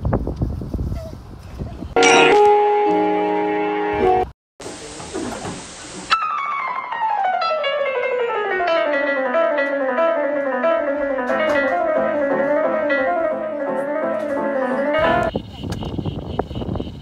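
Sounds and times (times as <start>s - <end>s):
plucked guitar music: 2.0s - 4.2s, 6.2s - 15.3s.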